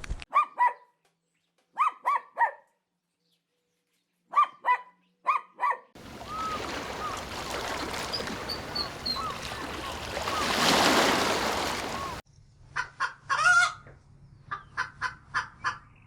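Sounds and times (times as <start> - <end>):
small dog yipping: 0.3 - 0.9, 1.8 - 2.7, 4.3 - 7.2
faint calls: 6.0 - 12.2.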